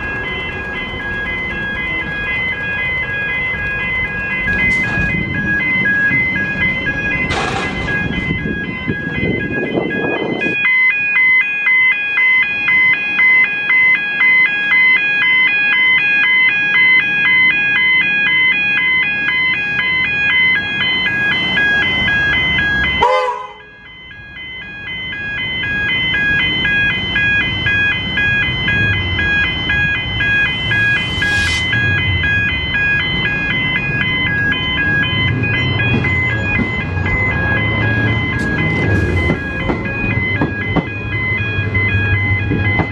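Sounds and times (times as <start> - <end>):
level crossing warning bells: 0.0 - 42.9
low rumble: 28.3 - 40.4.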